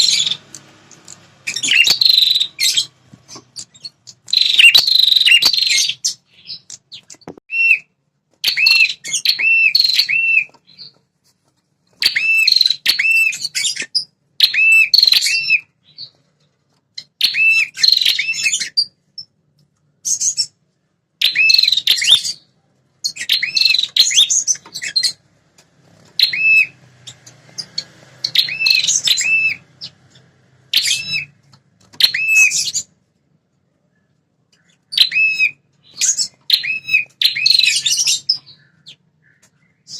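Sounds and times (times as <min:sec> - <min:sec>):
warbler chirping song: 0:00.0 - 0:11.0, 0:11.9 - 0:33.0, 0:33.7 - 0:39.9.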